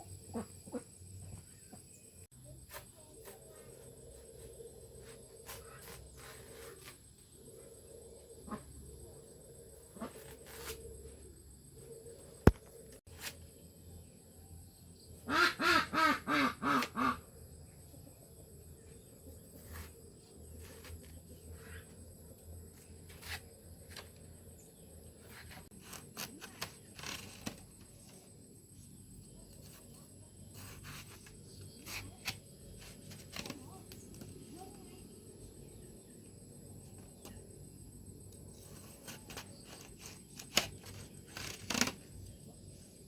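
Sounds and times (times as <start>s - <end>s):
sharp click: 12.4s - 12.7s.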